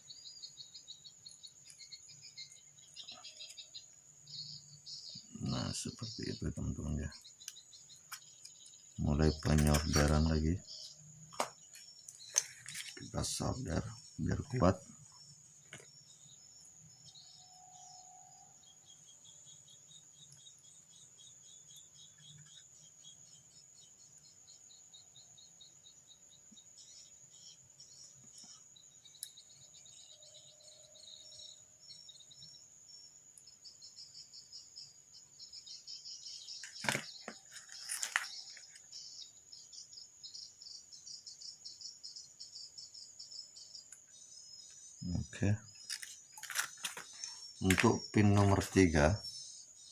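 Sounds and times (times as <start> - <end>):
crickets chirping: 0.0 - 49.9
brief rustle: 36.6 - 38.8, 45.8 - 48.5.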